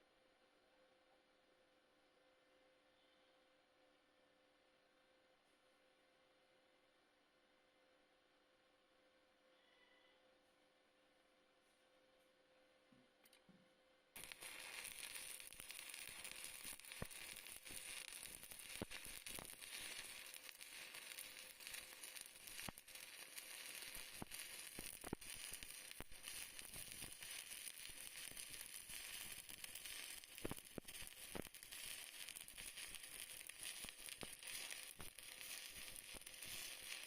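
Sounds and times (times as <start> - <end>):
welding arc crackling and popping: 14.2 - 37.0.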